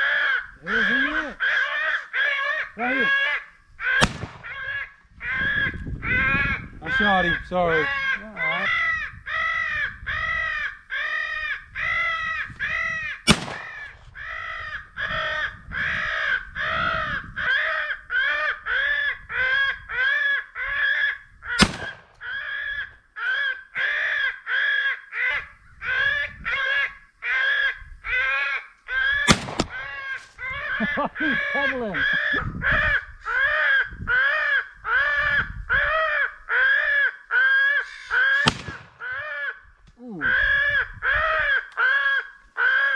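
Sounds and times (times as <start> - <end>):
electronic crow caws: 0.0 - 42.9
gunshots: 4.0 - 4.8, 13.3 - 14.2, 21.6 - 22.3, 29.3 - 30.2, 38.4 - 39.2.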